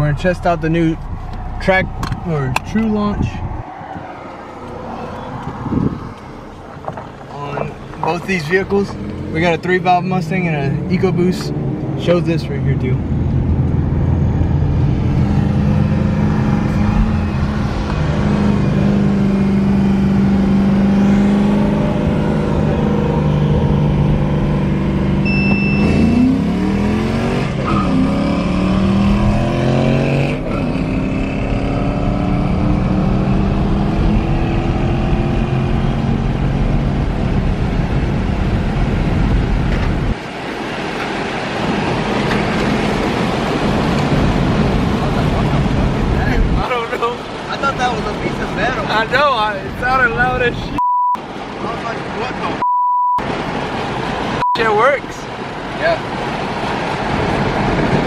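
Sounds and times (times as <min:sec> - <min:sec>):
car engine accelerating hard: 0:00.0 - 0:52.6
short high beep: 0:25.2 - 0:26.3, 0:50.8 - 0:51.2, 0:52.6 - 0:53.2, 0:54.4 - 0:54.7.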